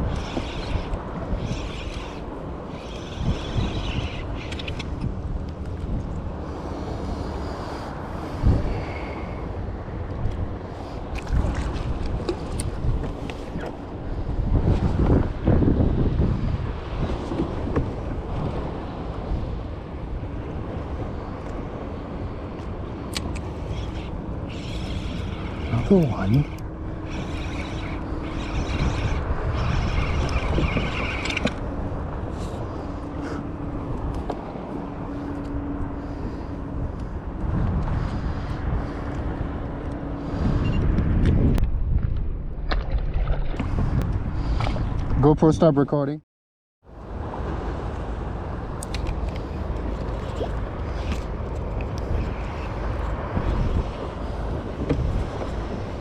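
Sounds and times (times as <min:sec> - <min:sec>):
wind buffeting microphone: 0:00.0 - 0:45.7, 0:47.0 - 0:56.0.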